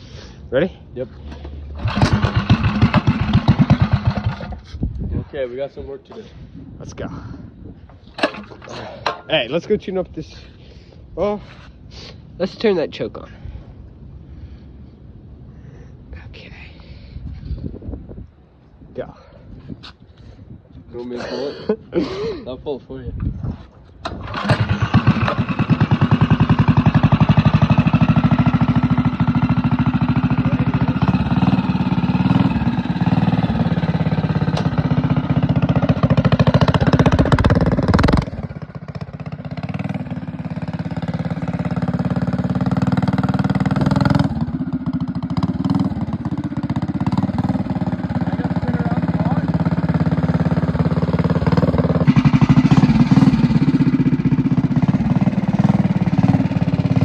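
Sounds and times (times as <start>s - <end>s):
small engine running: 1.8s - 4.6s.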